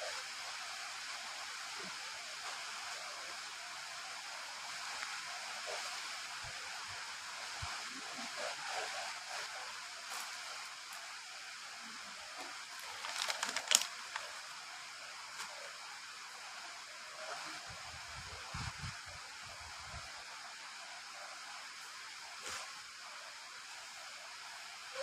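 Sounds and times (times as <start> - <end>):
rain falling: 0.9 - 17.7.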